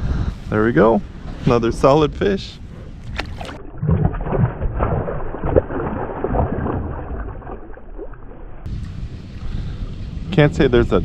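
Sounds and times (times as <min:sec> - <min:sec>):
water sloshing: 0:02.7 - 0:08.7.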